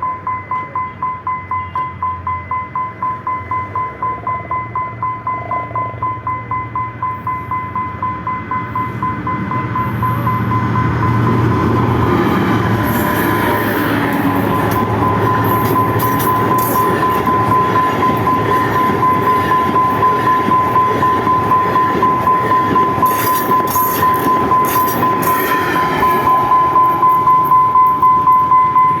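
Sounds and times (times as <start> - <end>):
train rumbling past: 0.0 - 29.0
pulsing high-pitched tone: 7.1 - 29.0.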